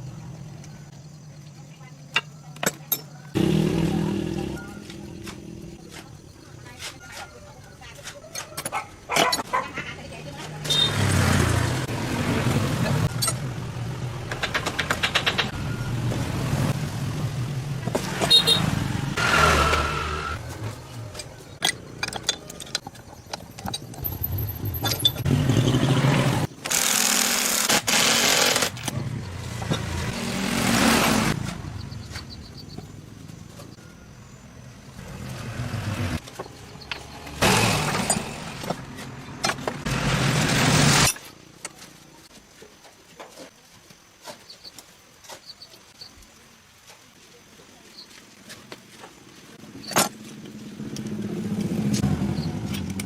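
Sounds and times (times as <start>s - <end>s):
handling clicks and knocks: 14.3s - 15.6s, 20.5s - 25.3s.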